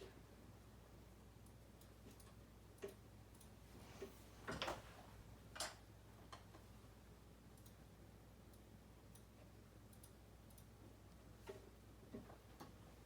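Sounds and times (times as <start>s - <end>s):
soft computer clicks: 7.6s - 7.8s, 9.9s - 10.7s.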